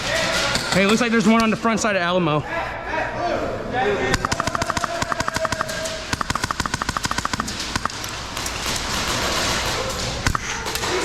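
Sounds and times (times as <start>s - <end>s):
airsoft gun automatic bursts: 4.2s - 11.0s.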